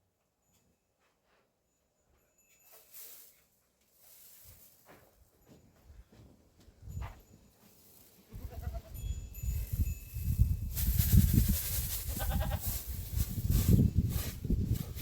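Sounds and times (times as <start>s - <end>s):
goat bleating: 8.3s - 8.9s, 12.1s - 12.7s.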